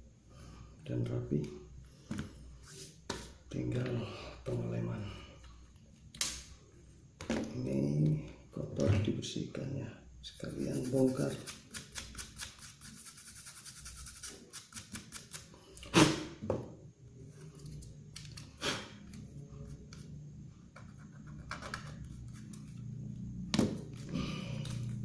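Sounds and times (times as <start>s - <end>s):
low steady hum: 16.6s - 25.0s.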